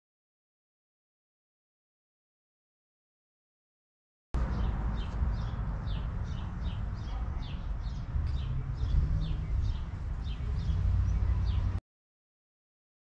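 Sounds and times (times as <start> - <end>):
bird chirping: 4.4 - 11.8
steady low outdoor rumble: 4.4 - 11.8.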